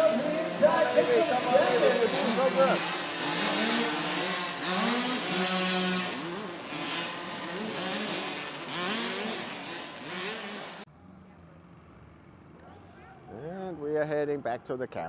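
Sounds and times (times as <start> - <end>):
motocross bike engines revving: 0.0 - 10.9.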